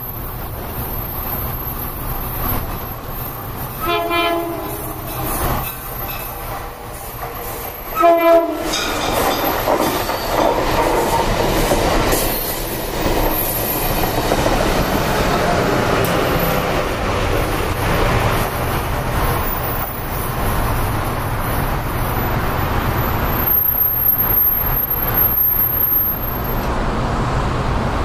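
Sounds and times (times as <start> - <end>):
train wheels clattering on rails: 1.2 - 26.7
train horn blasts: 3.8 - 5.4, 7.9 - 8.7.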